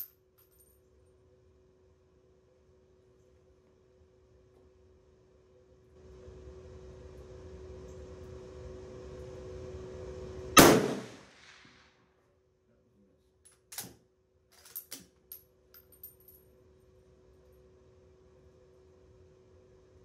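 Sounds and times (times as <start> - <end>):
rifle shot with echo: 10.6 - 11.8
metallic clacks of rifle bolt: 13.5 - 14.0.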